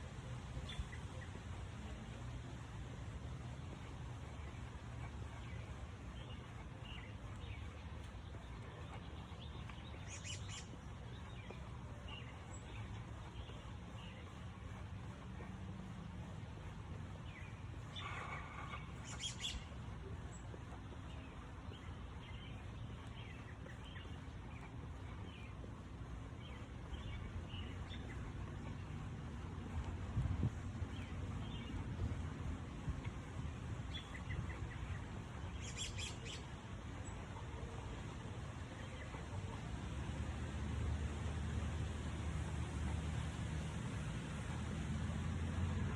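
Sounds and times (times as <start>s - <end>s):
low steady background hum: 0.0s - 45.9s
small birds chirping: 0.6s - 39.6s.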